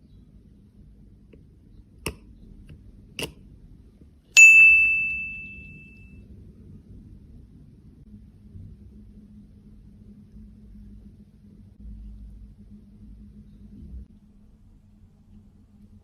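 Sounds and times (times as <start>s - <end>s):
bright bell-like ding: 4.4s - 6.0s.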